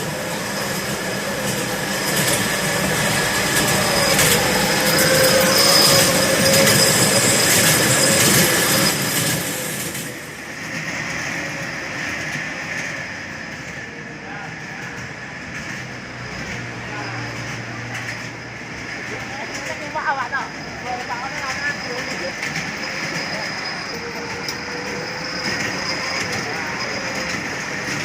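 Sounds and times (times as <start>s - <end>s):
thin high whine: 0.0s - 10.1s
wheels rumbling on rail: 0.0s - 28.0s.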